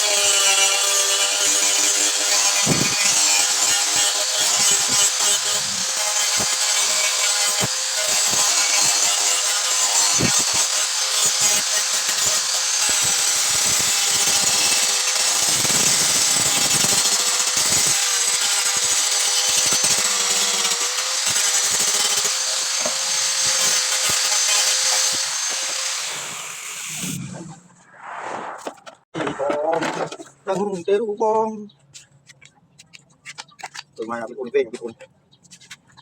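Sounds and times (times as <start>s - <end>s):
power tool grinding metal: 0.0s - 27.4s.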